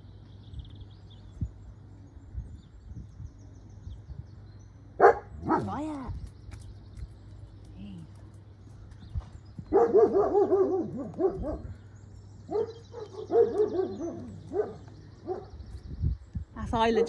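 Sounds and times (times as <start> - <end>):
dog barking: 5.0 - 5.8, 9.7 - 11.8, 12.5 - 15.6.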